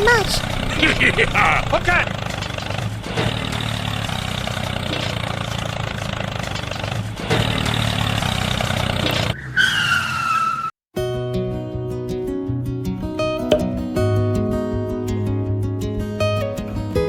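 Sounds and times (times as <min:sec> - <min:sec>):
mini tractor engine running: 0:00.0 - 0:09.3.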